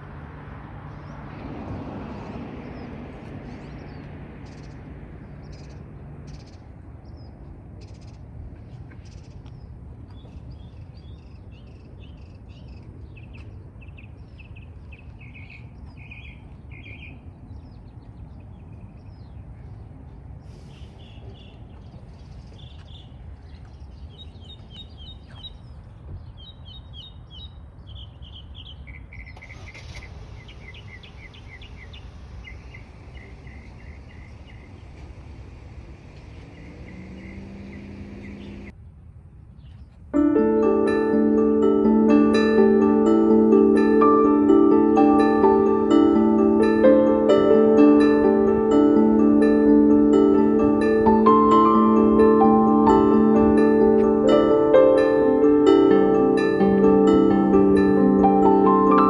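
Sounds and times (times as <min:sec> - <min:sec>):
birds chirping: 0:00.0 - 0:19.8, 0:20.5 - 0:38.7
low outdoor rumble: 0:29.5 - 0:38.7, 0:41.4 - 0:59.0.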